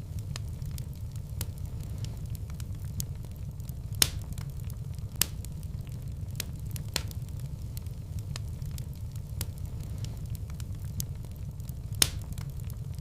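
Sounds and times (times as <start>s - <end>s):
fire crackling: 0.0s - 13.0s
steady low rumble: 0.0s - 13.0s.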